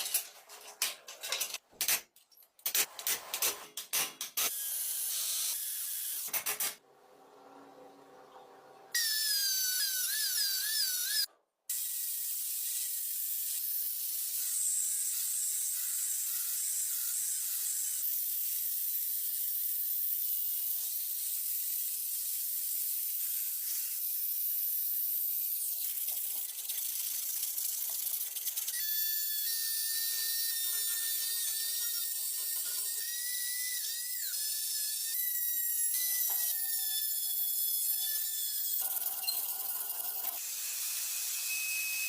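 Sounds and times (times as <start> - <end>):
rotary tool scrubbing metal: 20.5 - 42.0.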